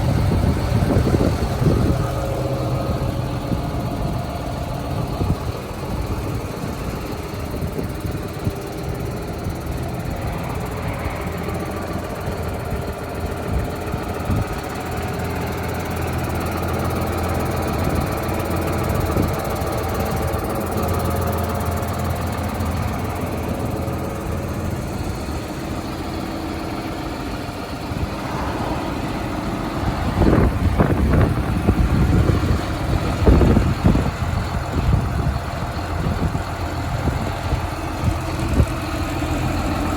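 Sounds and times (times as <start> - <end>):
diesel tractor engine idling: 0.0 - 39.9.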